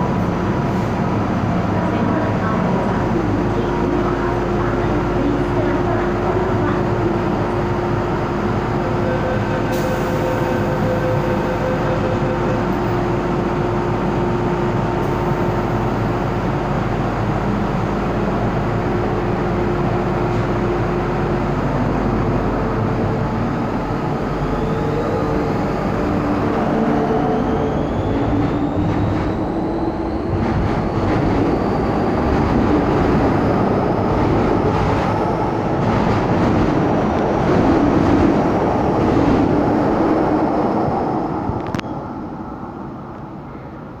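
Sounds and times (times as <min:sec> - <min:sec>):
train rumbling: 0:00.0 - 0:44.0
train motor whine rising: 0:18.8 - 0:43.3.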